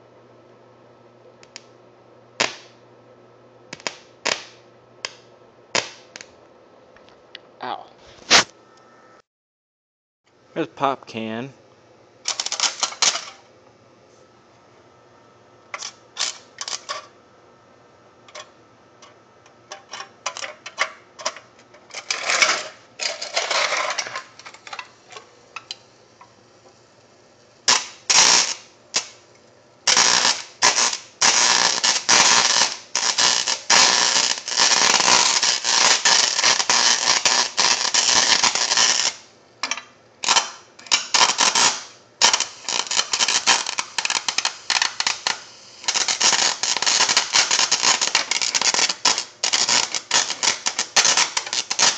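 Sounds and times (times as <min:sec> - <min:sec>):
electric arc crackling: 0:02.4 - 0:02.8, 0:03.7 - 0:06.3, 0:08.2 - 0:08.5, 0:12.2 - 0:13.4, 0:15.7 - 0:17.0, 0:19.7 - 0:29.2, 0:29.8 - 0:39.3, 0:40.2 - 0:51.9.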